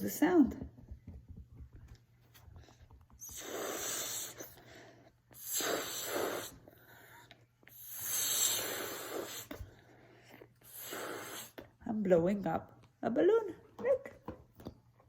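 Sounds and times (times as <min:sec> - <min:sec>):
person blowing up balloon: 0:03.2 - 0:04.7, 0:05.3 - 0:09.7, 0:10.6 - 0:11.7.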